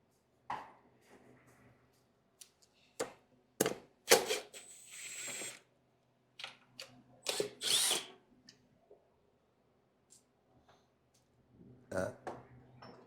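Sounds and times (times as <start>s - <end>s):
power tool whirring: 4.1s - 5.6s, 7.3s - 8.1s.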